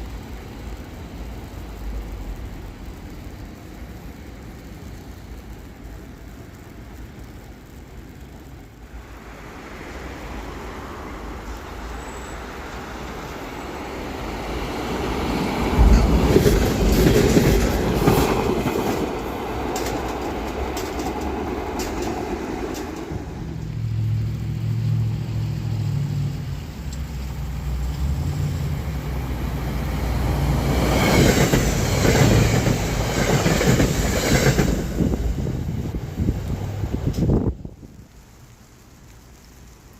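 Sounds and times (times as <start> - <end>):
passenger train passing: 0.0 - 39.6
wheel clicks over rail joints: 15.7 - 23.2.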